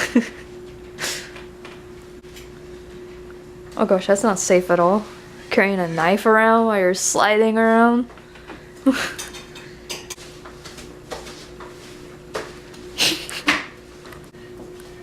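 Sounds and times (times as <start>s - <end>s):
kitchenware knocking and clinking: 9.1s - 10.2s.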